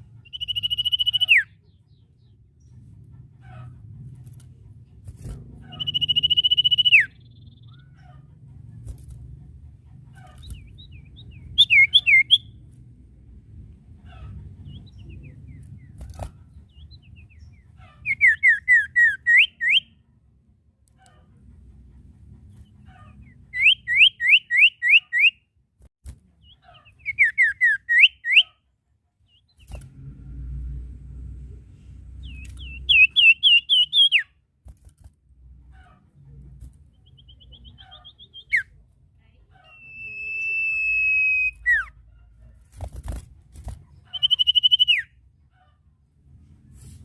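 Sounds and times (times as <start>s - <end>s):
songbird whistling: 0.2s - 1.6s, 5.7s - 7.7s, 10.6s - 12.6s, 18.1s - 19.9s, 23.5s - 25.4s, 27.0s - 28.5s, 32.2s - 34.3s, 37.0s - 38.7s, 39.7s - 41.9s, 44.1s - 45.2s
faint low rumble: 1.5s - 18.1s, 28.9s - 33.2s.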